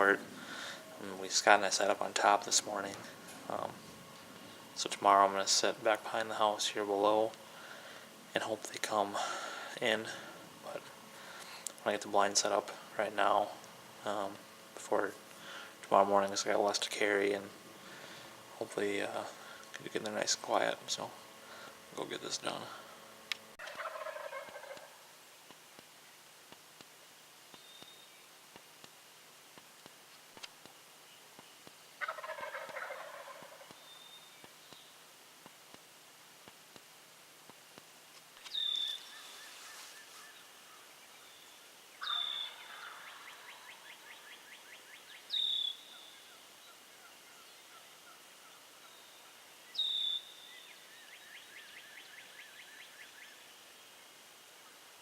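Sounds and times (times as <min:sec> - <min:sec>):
wild turkey gobbling: 0:00.0 - 0:06.8, 0:23.6 - 0:25.2, 0:32.0 - 0:34.5, 0:38.5 - 0:41.0, 0:41.9 - 0:53.6
songbird trills: 0:27.5 - 0:28.4, 0:31.0 - 0:35.0, 0:38.4 - 0:54.8.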